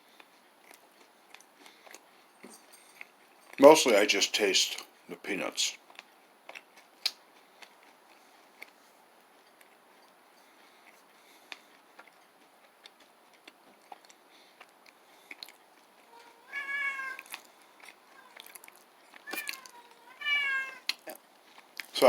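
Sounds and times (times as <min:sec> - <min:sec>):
faint chewing: 0:00.0 - 0:04.2, 0:05.8 - 0:22.0
cat meowing: 0:16.0 - 0:17.4, 0:18.0 - 0:20.9.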